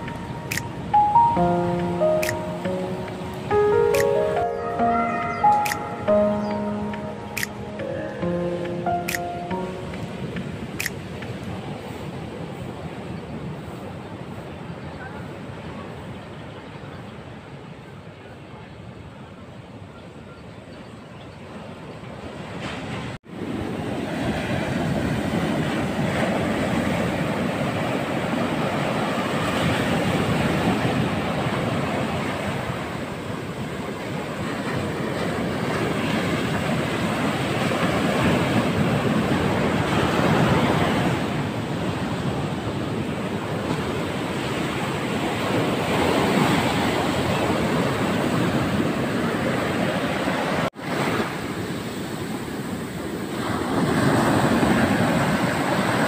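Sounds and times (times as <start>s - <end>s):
surf washing onto beach: 22.6s - 56.0s.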